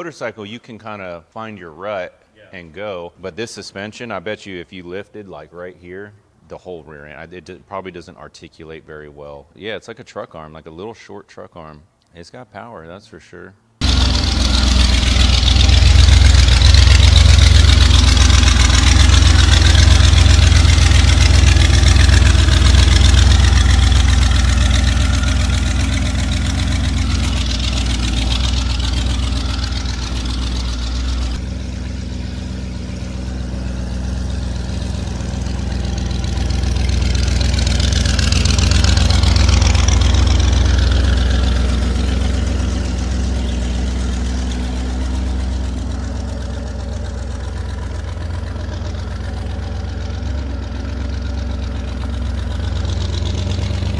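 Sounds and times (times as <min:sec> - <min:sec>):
engine running loudly: 0:13.8 - 0:53.9.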